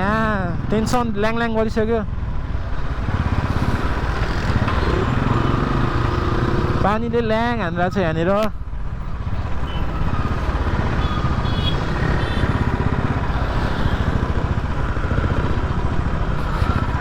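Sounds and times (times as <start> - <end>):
wind and road noise: 0.0 - 17.0
motorcycle engine running: 10.3 - 17.0.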